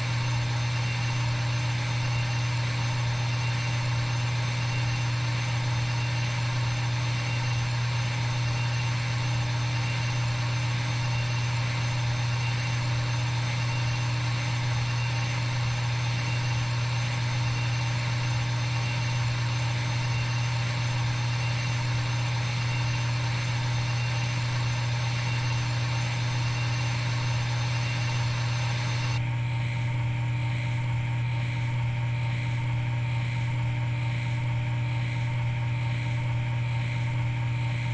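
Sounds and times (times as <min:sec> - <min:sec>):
faint whine: 0:00.0 - 0:29.2
machine hum with low drone: 0:00.0 - 0:37.9.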